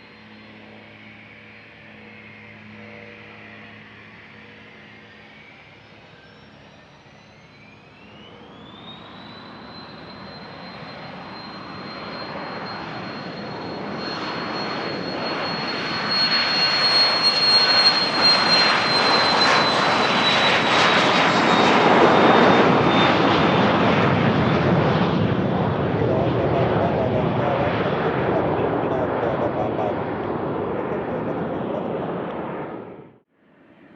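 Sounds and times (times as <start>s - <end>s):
jet engine roar: 0.0s - 33.9s
jet engine whine: 0.0s - 33.9s.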